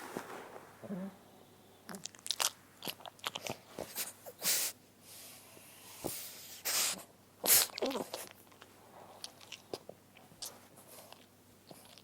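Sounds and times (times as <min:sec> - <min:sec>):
dog hissing breath: 0:03.9 - 0:07.7.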